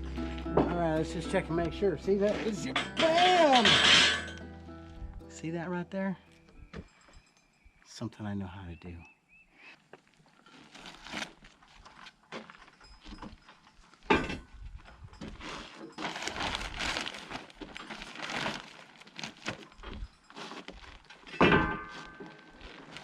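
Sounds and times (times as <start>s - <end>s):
loud metal clanks: 2.7s - 4.4s.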